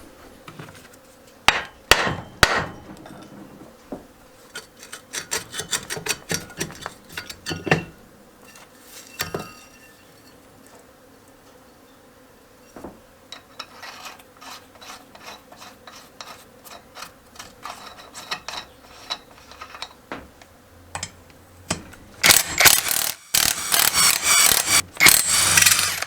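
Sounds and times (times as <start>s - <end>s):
metal scraping and clatter: 2.2s - 10.4s, 13.4s - 20.0s
ratchet clicking: 22.2s - 26.0s.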